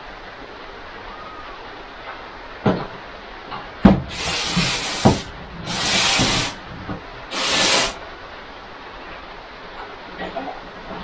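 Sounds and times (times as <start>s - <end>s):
hissing bursts: 4.0s - 6.6s, 7.3s - 8.0s.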